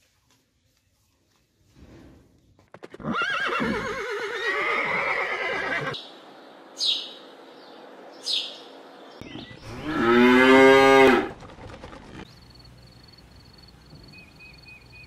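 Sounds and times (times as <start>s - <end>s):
horse whinnying: 2.8s - 6.0s, 9.7s - 11.4s
small bird chirping: 6.8s - 9.7s, 12.3s - 15.0s
cow mooing: 9.7s - 11.3s.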